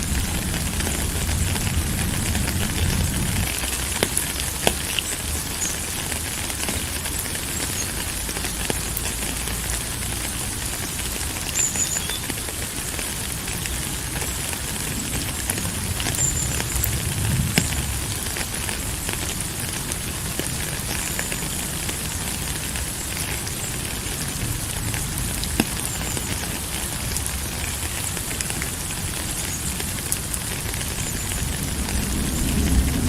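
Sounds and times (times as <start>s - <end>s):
low rumble: 0.0s - 4.0s, 15.6s - 19.1s, 31.5s - 33.0s
raindrop ticks: 0.0s - 33.0s
steady rain hiss: 0.0s - 33.0s.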